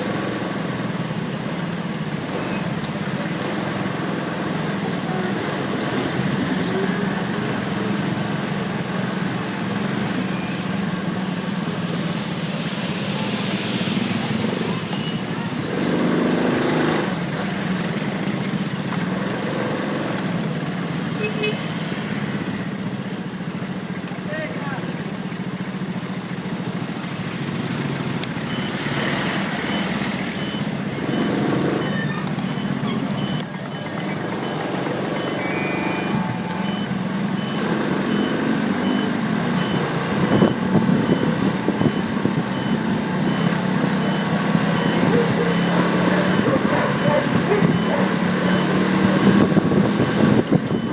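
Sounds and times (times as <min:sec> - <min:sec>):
street traffic noise: 0:00.0 - 0:50.9
faint high beep: 0:29.7 - 0:39.8.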